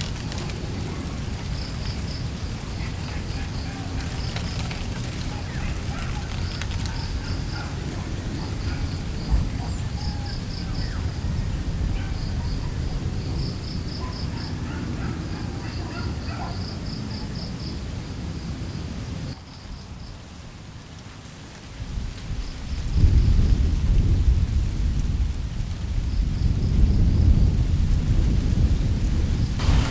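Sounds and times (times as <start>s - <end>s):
insects chirping in pulsing trills: 0.0s - 11.2s, 11.9s - 20.1s
low rumble of wind: 0.0s - 29.9s.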